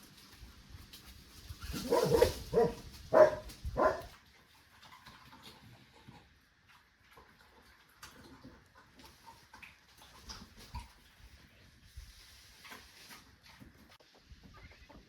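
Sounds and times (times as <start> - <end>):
dog barking: 1.8 - 4.1.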